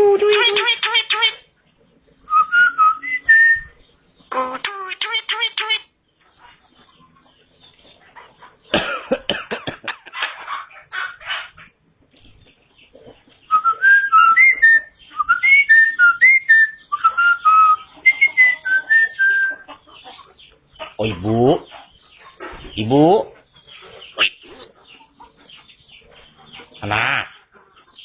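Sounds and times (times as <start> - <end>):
bird harsh raspy call: 24.0 - 24.8.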